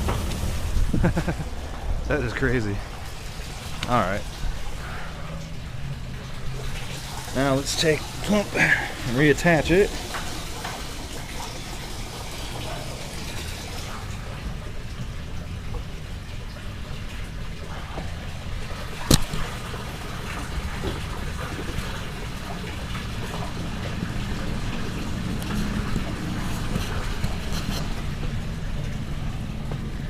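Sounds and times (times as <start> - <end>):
running water: 0.0 - 30.0
pump handled in water: 18.8 - 19.6, 24.6 - 28.0.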